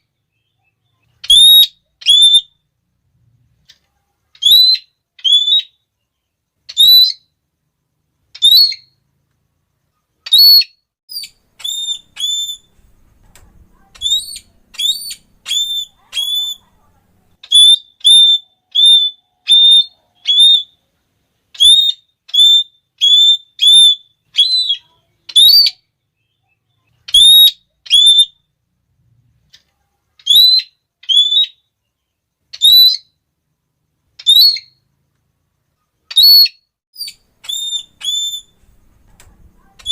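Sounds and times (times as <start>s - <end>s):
parrot calling shrill notes: 1.2s - 2.6s, 4.4s - 5.8s, 6.7s - 7.3s, 8.3s - 9.0s, 10.2s - 12.8s, 13.8s - 16.7s, 17.4s - 20.8s, 21.5s - 25.9s, 27.1s - 28.4s, 30.2s - 31.7s, 32.5s - 33.2s, 34.2s - 34.8s, 36.1s - 38.7s.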